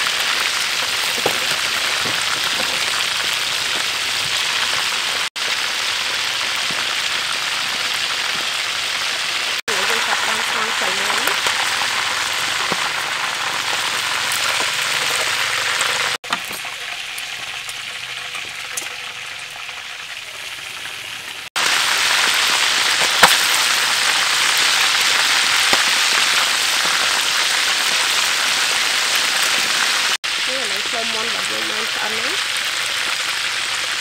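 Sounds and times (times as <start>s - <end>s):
chicken deep-frying in hot oil: 0.0s - 34.0s
sharp pop: 23.0s - 23.6s.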